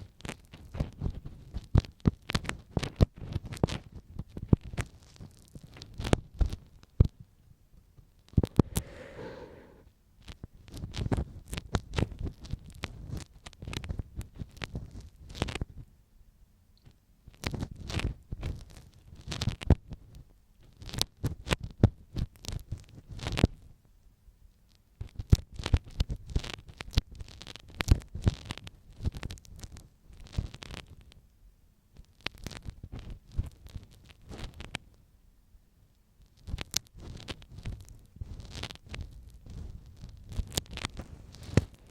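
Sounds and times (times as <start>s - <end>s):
ear pick scraping microphone: 8.4s - 9.9s.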